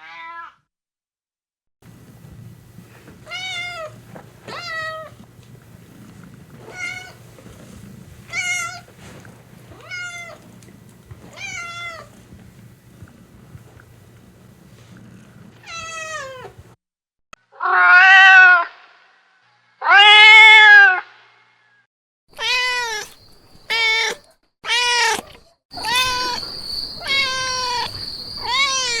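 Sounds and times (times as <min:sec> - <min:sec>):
cats meowing: 0:03.2 - 0:05.2, 0:06.0 - 0:12.2, 0:15.6 - 0:16.6, 0:22.3 - 0:29.0.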